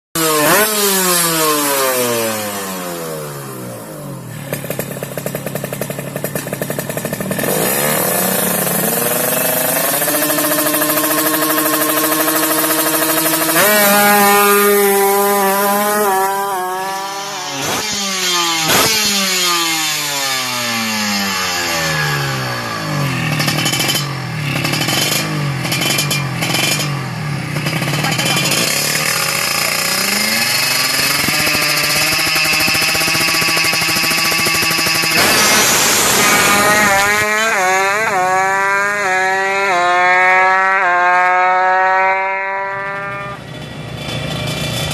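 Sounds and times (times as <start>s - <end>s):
motorcycle engine revving: 0.2s - 44.9s.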